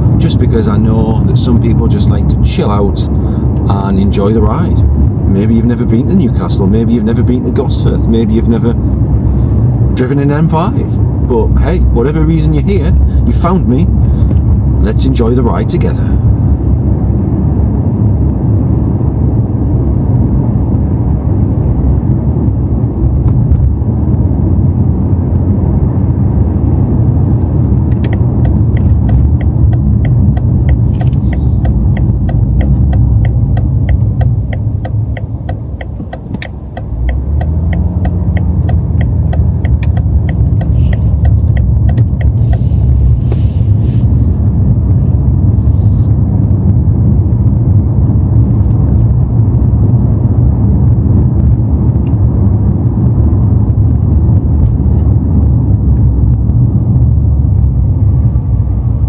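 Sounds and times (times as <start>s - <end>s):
car engine and road noise: 0.0s - 59.0s
regular ticking: 27.3s - 43.8s, 46.1s - 55.2s.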